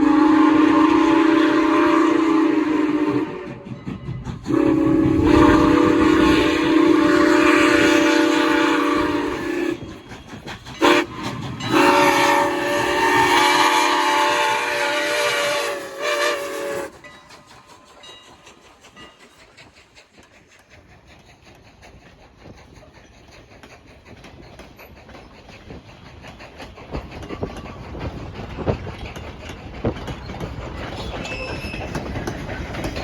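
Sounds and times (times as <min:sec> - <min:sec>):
locomotive horn blasts: 0:00.0 - 0:03.6, 0:04.5 - 0:09.8, 0:10.8 - 0:16.9
train wheels clicking on rails: 0:00.0 - 0:33.0.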